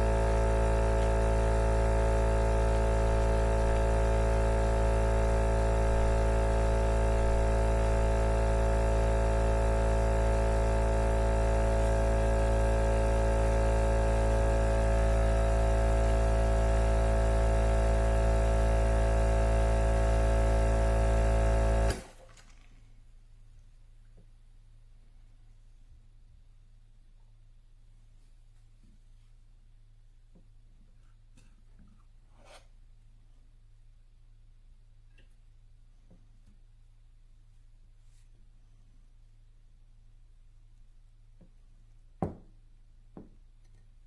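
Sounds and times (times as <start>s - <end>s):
electrical hum: 0.0s - 27.1s.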